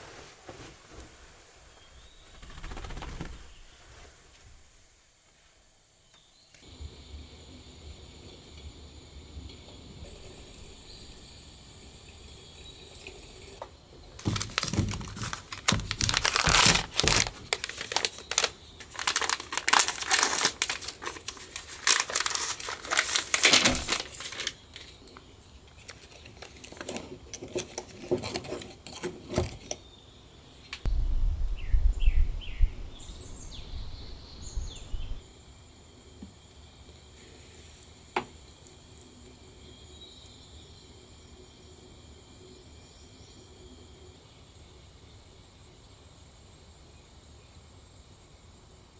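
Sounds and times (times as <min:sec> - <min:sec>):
packaging crinkling: 0:14.2 - 0:29.8
soft low thumps: 0:30.9 - 0:35.2.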